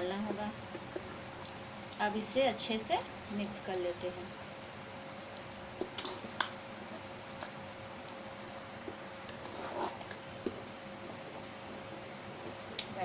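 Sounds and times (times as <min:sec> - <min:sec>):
faint steady hum: 0:00.0 - 0:13.0
soft squelch of mixture: 0:03.0 - 0:12.9.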